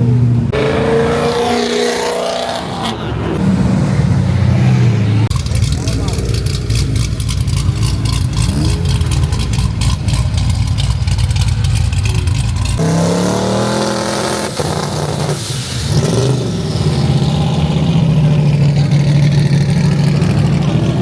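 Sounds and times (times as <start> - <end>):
engine revving: 0.0 - 21.0
sports car exhaust rumble with crackle: 5.3 - 13.4.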